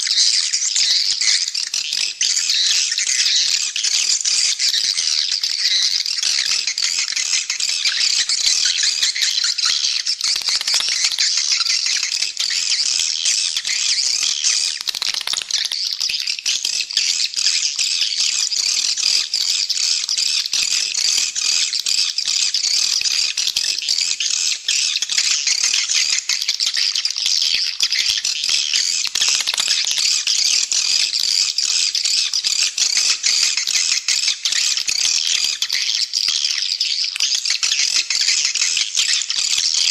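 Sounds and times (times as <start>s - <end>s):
swiftlets chittering: 8.6s - 16.4s, 28.5s - 30.6s.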